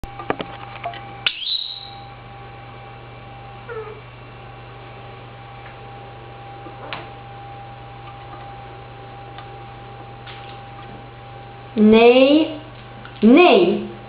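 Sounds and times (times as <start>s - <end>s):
steady background hum: 0.0s - 14.0s
parrot call: 1.3s - 2.1s.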